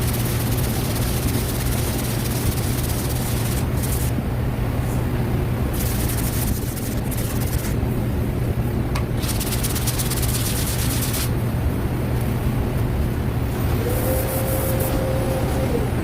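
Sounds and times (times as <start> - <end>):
sanding block scratching filler: 0.0 - 4.1, 5.8 - 7.8, 9.2 - 11.3
steady low hum: 0.0 - 16.0.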